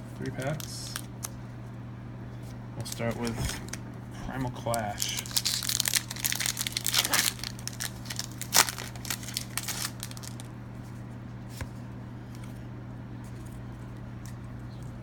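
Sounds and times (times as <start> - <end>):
steady low hum: 0.0 - 15.0
foil wrapper tearing and crinkling: 4.6 - 10.5.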